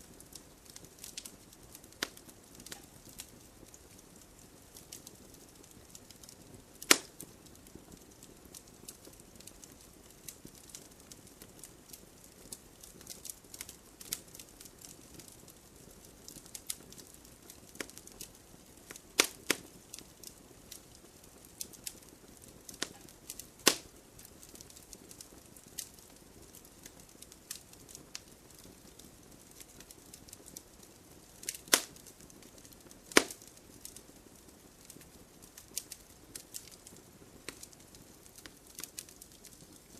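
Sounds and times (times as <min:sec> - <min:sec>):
wood fire crackling: 0:00.0 - 0:39.9
sharp loud fire pops: 0:06.9 - 0:07.1, 0:33.1 - 0:33.4.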